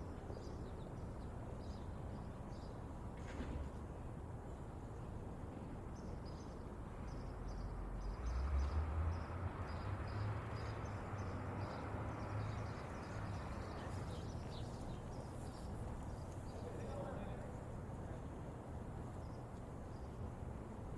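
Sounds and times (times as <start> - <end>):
small birds chirping: 9.7 - 18.2.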